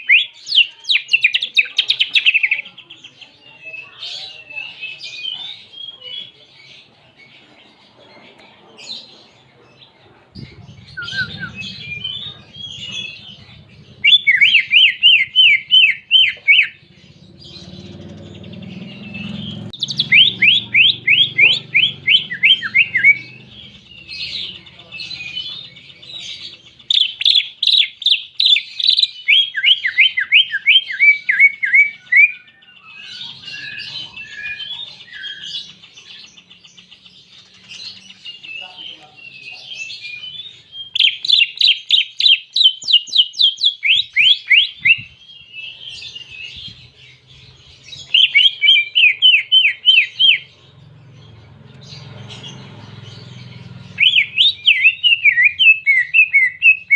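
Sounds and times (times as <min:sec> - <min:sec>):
bird singing: 0:00.0 - 0:56.9
low rumble: 0:10.4 - 0:14.4.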